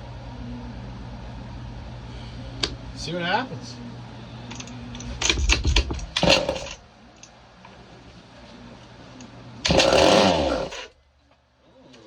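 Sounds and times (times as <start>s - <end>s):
chainsaw engine running: 6.2s - 6.8s, 9.7s - 10.9s
chainsaw pull-start clattering: 6.2s - 6.8s, 9.7s - 10.9s.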